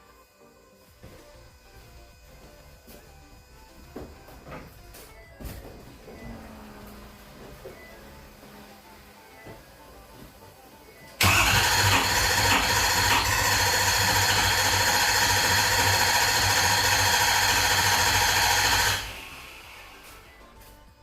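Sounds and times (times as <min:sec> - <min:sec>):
diesel engine running: 0:06.0 - 0:09.0, 0:11.2 - 0:20.7.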